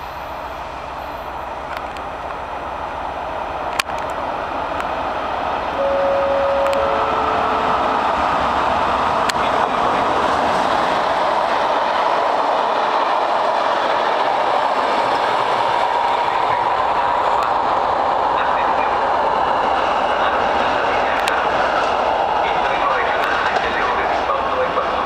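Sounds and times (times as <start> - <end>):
train rumbling on tracks: 0.0 - 25.0
brief steady tones: 5.8 - 8.8.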